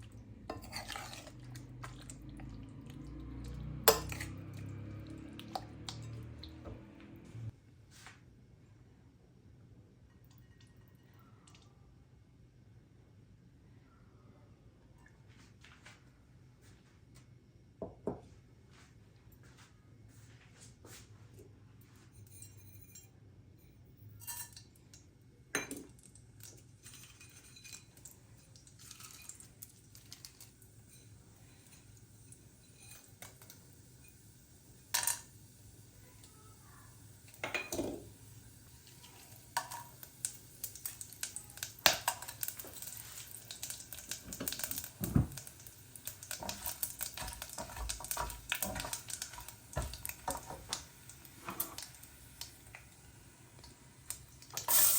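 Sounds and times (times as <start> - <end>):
dishes and utensils clinking: 0.5 - 2.2, 3.9 - 6.6, 22.1 - 24.8, 25.6 - 26.0, 26.8 - 29.6, 37.3 - 38.1, 46.3 - 52.0.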